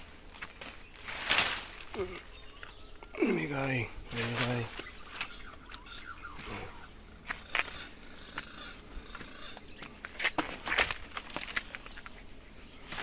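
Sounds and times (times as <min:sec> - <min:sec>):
insects chirring: 0:00.0 - 0:13.0
footsteps through dry leaves: 0:00.4 - 0:02.0, 0:04.1 - 0:06.0.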